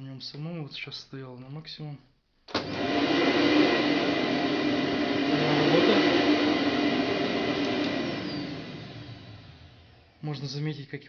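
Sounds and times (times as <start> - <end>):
vacuum cleaner running: 2.5 - 10.2.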